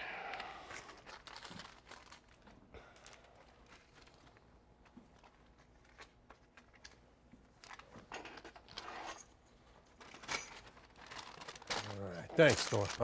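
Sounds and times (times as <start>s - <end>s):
keys jangling: 11.7s - 13.0s.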